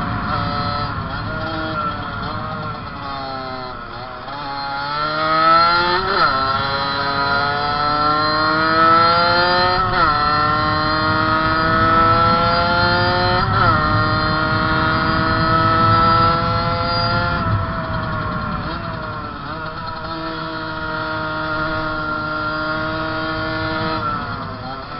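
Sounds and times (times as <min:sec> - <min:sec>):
two-stroke motorcycle engine revving: 0:00.0 - 0:24.9.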